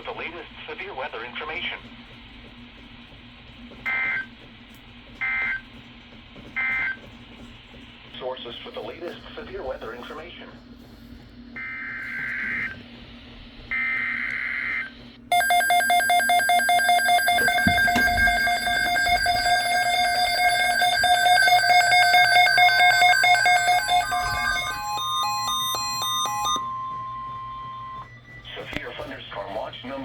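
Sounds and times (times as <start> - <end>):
pulsing electronic alarm tune: 15.3 - 28.4.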